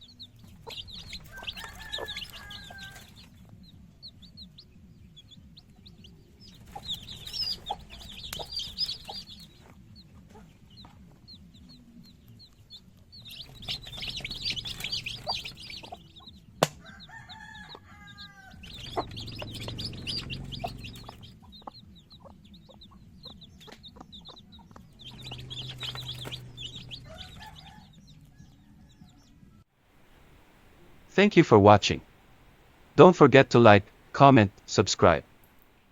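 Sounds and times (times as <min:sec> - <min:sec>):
drawn-out chicken call: 0:00.0 - 0:03.6, 0:06.3 - 0:09.6, 0:13.2 - 0:29.4
chickens chirping: 0:00.0 - 0:35.9.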